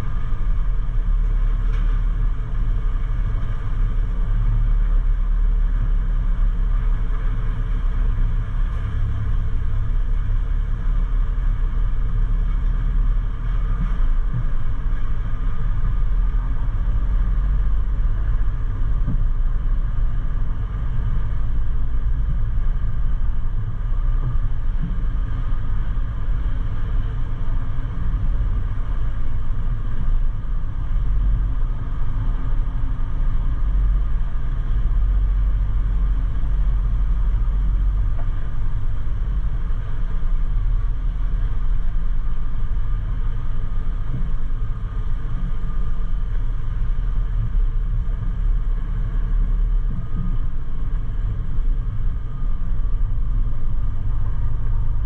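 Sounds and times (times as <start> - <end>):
truck diesel engine rumble: 0.0 - 55.0.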